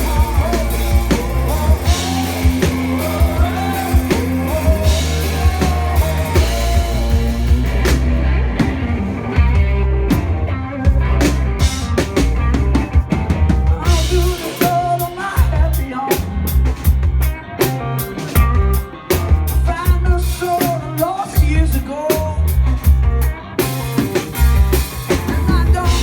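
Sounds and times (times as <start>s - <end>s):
bass drum and snare hits: 0.0s - 14.4s
live rock band playing: 0.0s - 26.0s.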